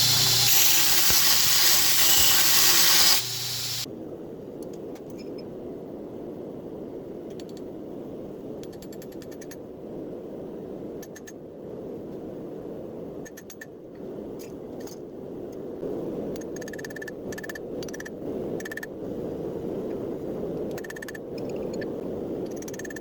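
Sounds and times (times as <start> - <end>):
forge rushing: 0.0 - 3.9.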